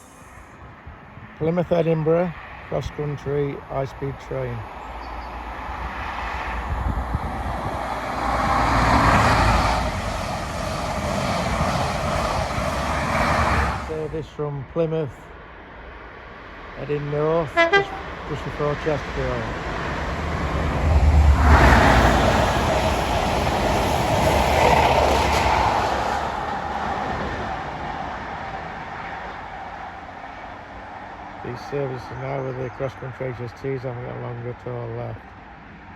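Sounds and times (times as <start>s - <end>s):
train rushing past: 5.2s - 14.1s, 17.0s - 31.7s.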